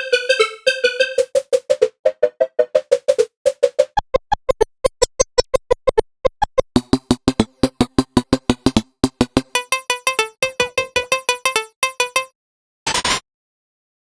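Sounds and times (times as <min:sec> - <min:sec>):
synthesizer plucked notes: 0:00.0 - 0:03.9, 0:06.8 - 0:12.3.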